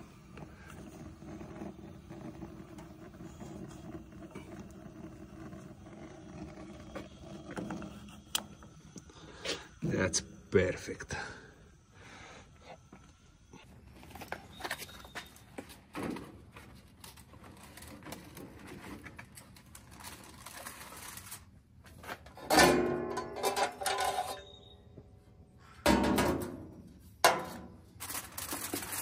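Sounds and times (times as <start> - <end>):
metal grill part clattering: 22.3 - 24.6.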